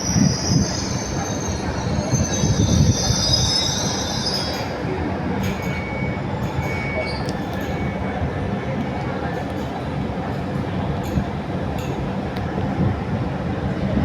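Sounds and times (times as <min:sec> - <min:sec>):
wheels squealing on rails: 0:00.0 - 0:09.1
train rumbling: 0:00.0 - 0:14.0.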